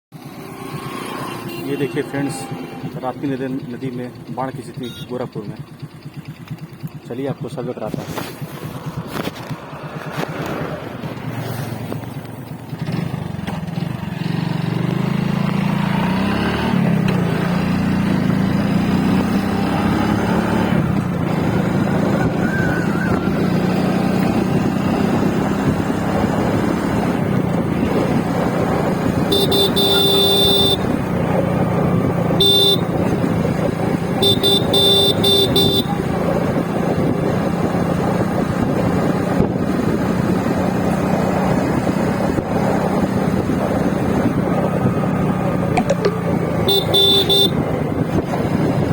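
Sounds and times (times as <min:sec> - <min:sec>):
horn honking: 0:00.5 - 0:03.3, 0:04.8 - 0:05.4, 0:28.9 - 0:36.6, 0:45.8 - 0:48.1
small vehicle engine running: 0:04.8 - 0:48.9.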